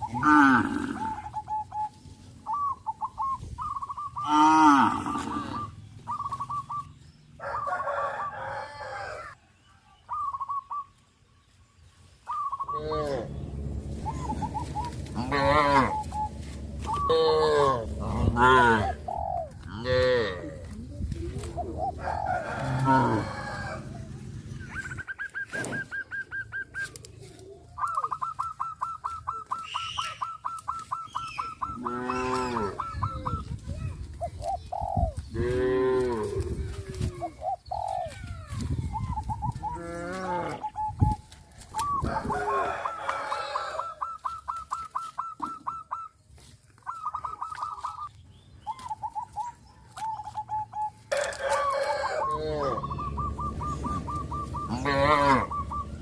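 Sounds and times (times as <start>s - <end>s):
chickens clucking: 12.3s - 56.0s
cattle mooing: 15.1s - 19.0s, 52.1s - 52.9s, 54.7s - 55.6s.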